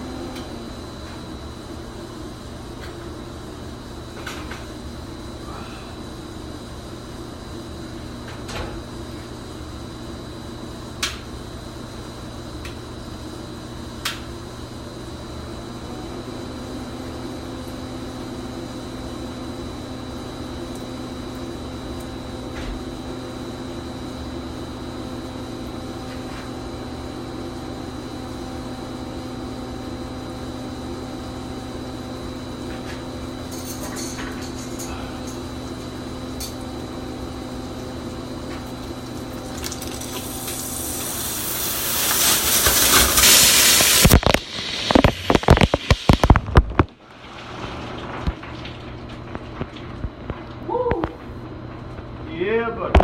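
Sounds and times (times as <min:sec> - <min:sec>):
machine electrical hum and whine: 0:00.0 - 0:53.0
crackling: 0:40.6 - 0:46.9.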